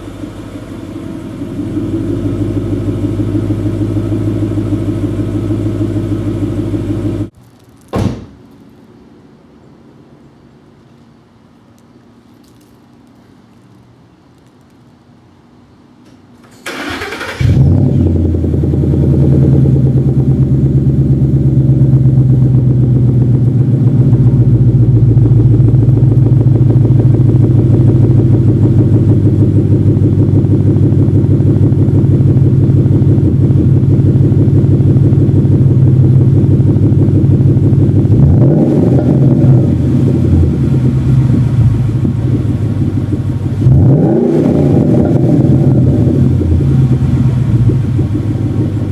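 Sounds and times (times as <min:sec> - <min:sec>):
car engine idling: 0:00.0 - 0:07.3, 0:16.8 - 0:48.9
car starter cranking: 0:16.5 - 0:18.0
engine revving: 0:16.7 - 0:48.9.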